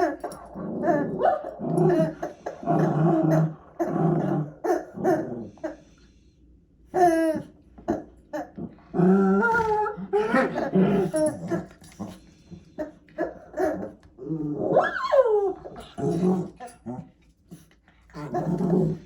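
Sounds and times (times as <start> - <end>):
puppies growling: 0.0 - 6.0, 6.9 - 19.0.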